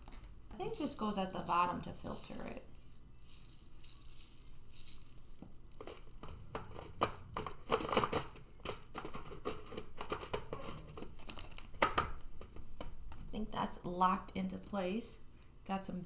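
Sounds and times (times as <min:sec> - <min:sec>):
plastic rustling and crinkling: 0:00.5 - 0:11.7.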